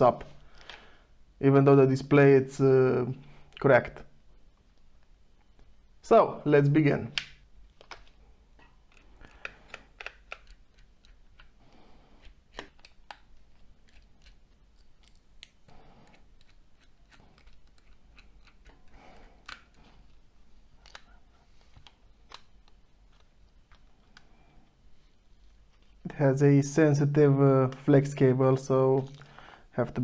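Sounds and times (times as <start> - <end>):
small plastic parts clicking: 8.9 - 11.6.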